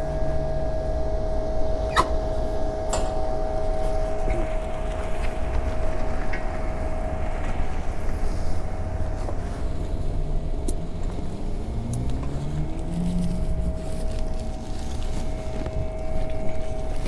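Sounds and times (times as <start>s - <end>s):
low rumble: 0.0s - 17.0s
steady hum: 0.0s - 17.0s
vehicle engine accelerating: 3.6s - 17.0s.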